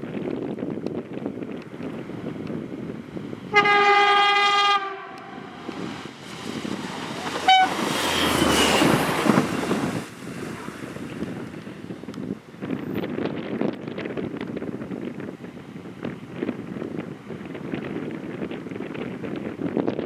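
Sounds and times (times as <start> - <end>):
train horn: 3.5 - 5.6, 7.4 - 9.0
loud rushing noise with rumble: 5.2 - 20.0.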